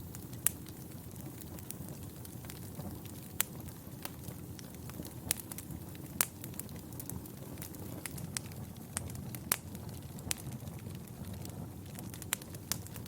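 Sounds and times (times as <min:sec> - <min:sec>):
fire crackling in a fireplace: 0:00.0 - 0:13.0
sharp pops of fire: 0:00.0 - 0:13.0.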